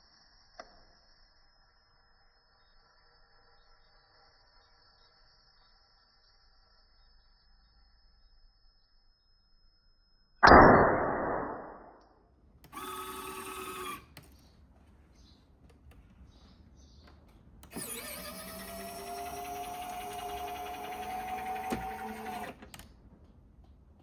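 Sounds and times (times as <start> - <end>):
small electric motor whirring: 12.7 - 14.2, 17.6 - 22.8.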